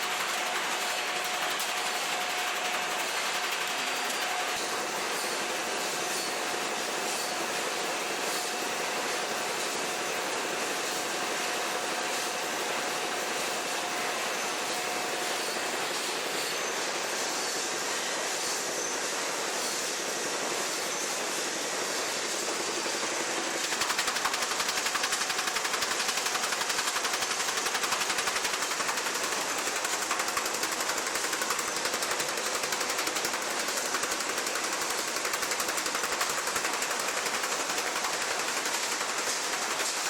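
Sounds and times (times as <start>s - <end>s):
machinery clattering: 23.1s - 40.0s.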